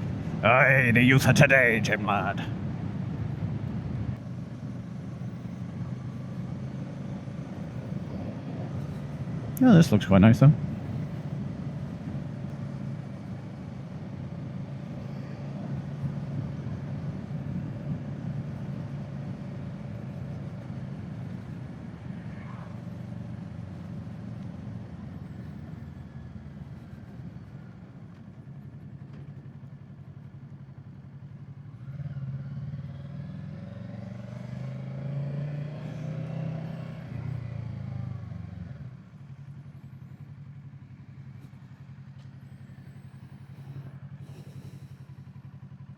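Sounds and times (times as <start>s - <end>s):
motorcycle engine running: 12.6s - 45.9s.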